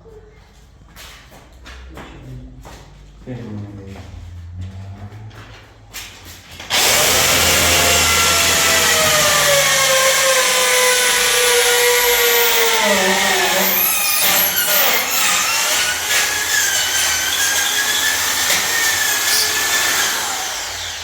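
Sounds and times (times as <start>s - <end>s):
electric drill running: 6.7s - 21.0s.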